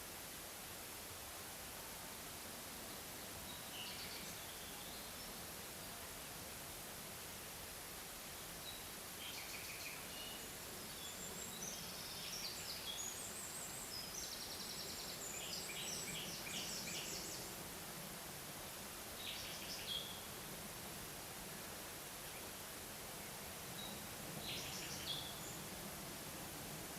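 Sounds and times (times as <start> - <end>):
steady background hiss: 0.0 - 26.9
songbird singing: 3.5 - 5.8, 8.6 - 17.6, 19.2 - 20.4, 23.2 - 26.2.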